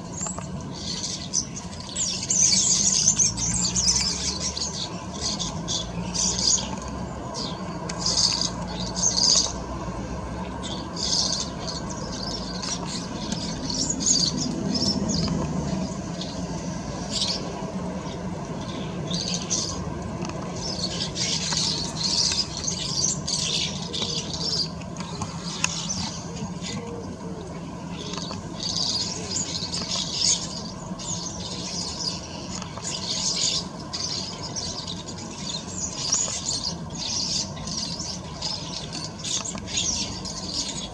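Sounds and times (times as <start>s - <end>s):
small birds chirping: 0.0s - 40.9s
steady low hum: 0.0s - 40.9s.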